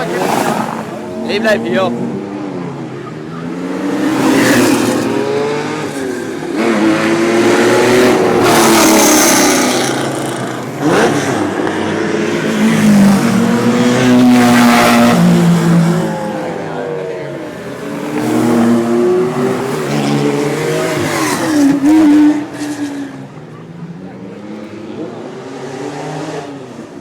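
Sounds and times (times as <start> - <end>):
sports cars revving past: 0.0 - 27.0.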